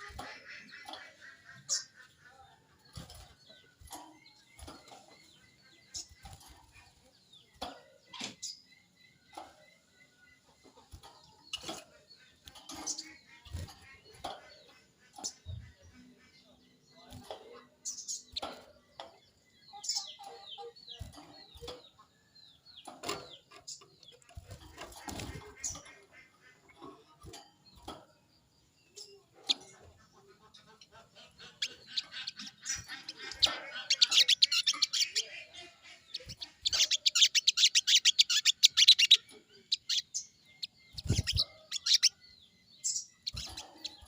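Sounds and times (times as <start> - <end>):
wings fluttering: 24.2 - 26.1, 40.9 - 41.9.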